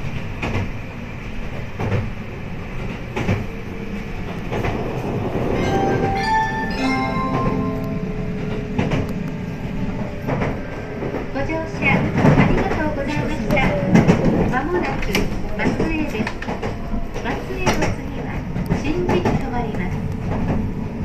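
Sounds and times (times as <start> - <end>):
train rumble: 0.0 - 21.0
chime melody over pa: 5.6 - 8.4.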